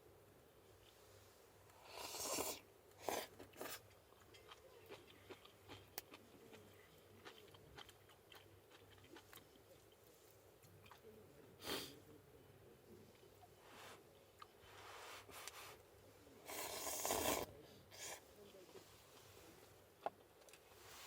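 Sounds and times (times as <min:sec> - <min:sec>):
person chewing with clicks: 0:03.4 - 0:10.0.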